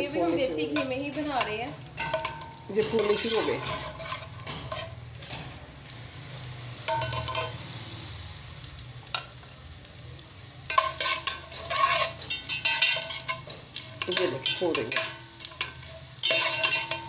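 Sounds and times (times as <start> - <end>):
gum sizzling in ghee: 0.0 - 17.0
metal spoon scraping pot: 0.1 - 5.6, 10.7 - 17.0.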